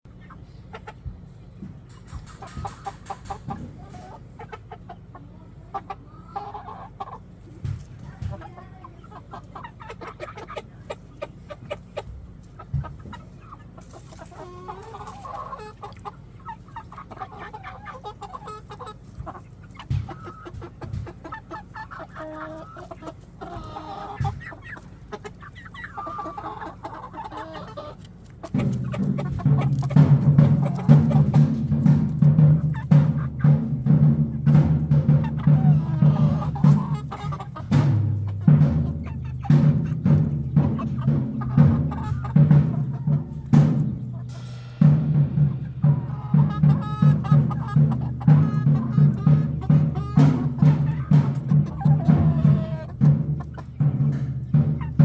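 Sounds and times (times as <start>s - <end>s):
chickens clucking: 0.0s - 55.0s
music: 28.6s - 37.0s, 37.7s - 55.0s.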